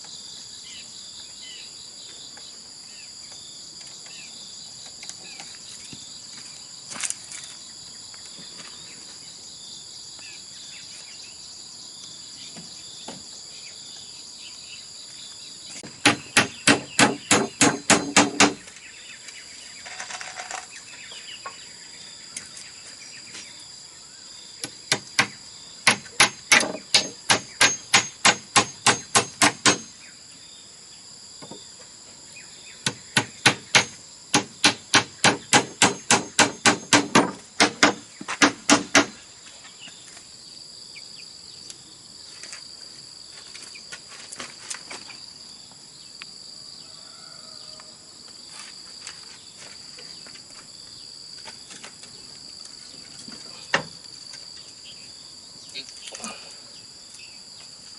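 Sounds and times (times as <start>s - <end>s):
insects droning: 0.0s - 57.9s
hammer blows on bamboo: 15.8s - 18.7s, 24.6s - 30.0s, 32.8s - 39.2s.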